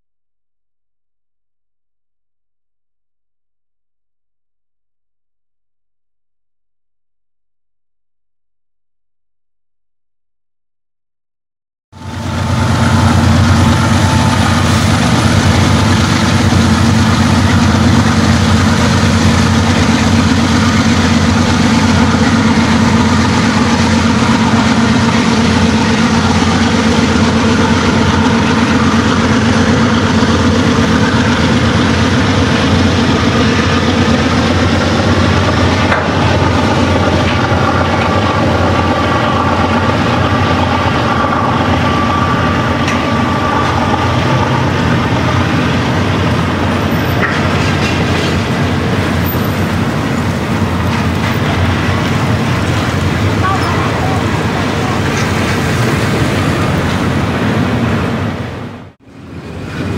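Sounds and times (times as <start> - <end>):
diesel locomotives running: 11.9 - 59.9
train cars rolling on rails: 12.0 - 59.9.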